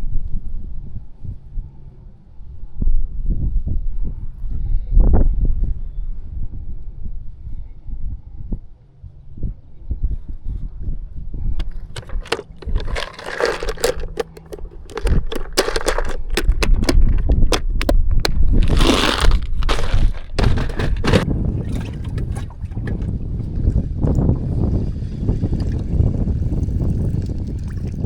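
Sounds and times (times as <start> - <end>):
wind rumble on microphone: 0.0 - 13.9, 14.6 - 28.0
sharp knocks and clicks: 11.6 - 21.2
water splashing and sloshing: 11.6 - 23.7.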